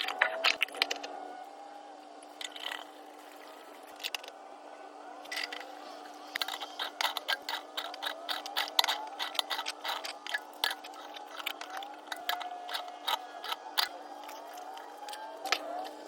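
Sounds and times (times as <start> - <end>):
steady hum: 0.0 - 16.0
small mechanical clicks: 5.2 - 16.0.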